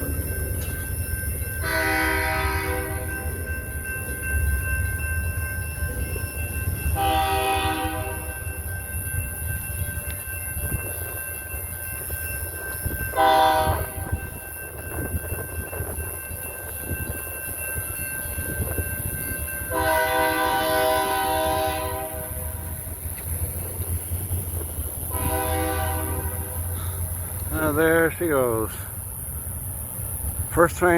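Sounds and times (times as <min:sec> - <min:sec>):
freight train rumble: 0:00.0 - 0:30.9
locomotive horn blasts: 0:01.6 - 0:03.2, 0:07.0 - 0:08.3, 0:13.2 - 0:14.1, 0:19.7 - 0:22.8, 0:25.1 - 0:26.7.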